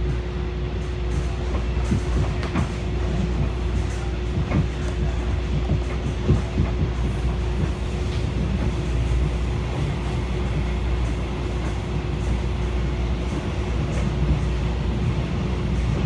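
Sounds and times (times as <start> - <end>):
train cars rumbling: 0.1 - 16.0.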